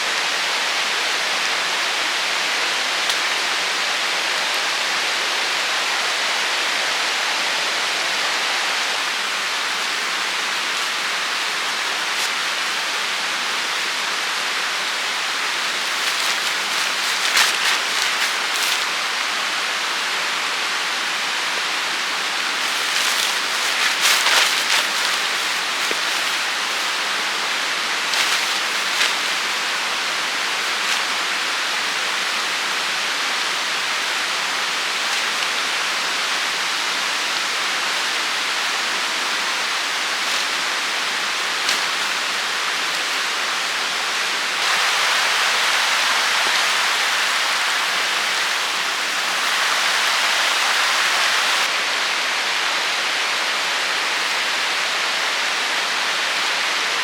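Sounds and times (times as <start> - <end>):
water rushing: 14.8 - 51.7.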